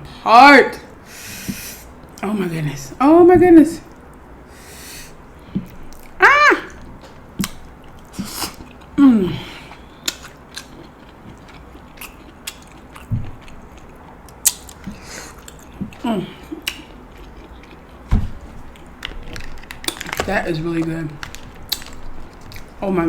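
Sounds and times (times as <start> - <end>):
wet chewing mouth clicks: 9.7 - 16.0.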